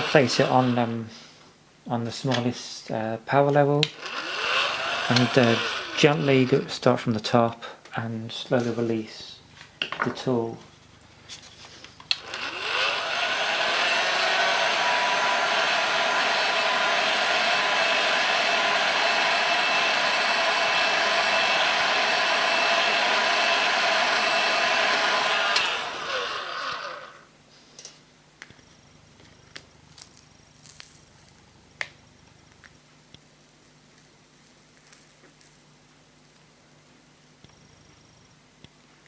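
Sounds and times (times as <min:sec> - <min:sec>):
heat gun fan hissing: 0:00.0 - 0:01.5, 0:03.8 - 0:07.0, 0:11.0 - 0:27.6.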